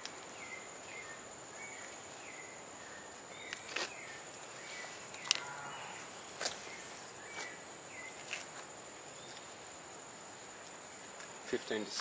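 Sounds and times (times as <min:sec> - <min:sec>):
bird chirps: 0:00.3 - 0:08.3.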